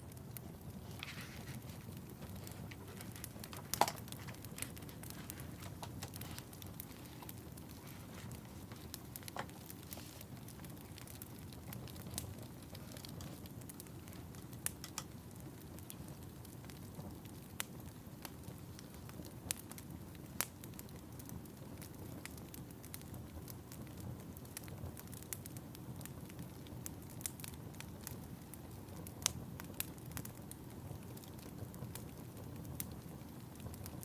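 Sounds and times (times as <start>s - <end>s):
fire crackling and popping: 0.0s - 34.0s
low rumble of fire flames: 0.0s - 34.0s.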